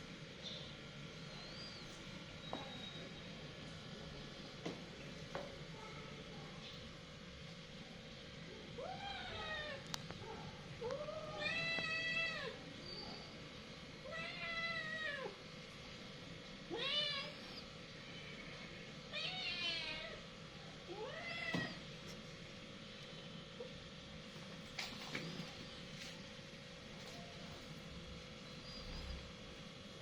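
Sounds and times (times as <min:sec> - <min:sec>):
cats yowling: 0:08.7 - 0:09.9, 0:10.8 - 0:12.7, 0:14.0 - 0:15.4, 0:16.7 - 0:18.4, 0:19.1 - 0:20.2, 0:20.9 - 0:21.9.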